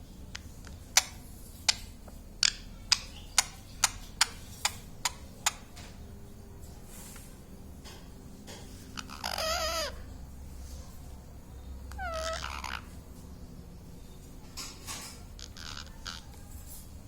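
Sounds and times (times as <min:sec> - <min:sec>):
parrot clicking: 0:00.3 - 0:05.9.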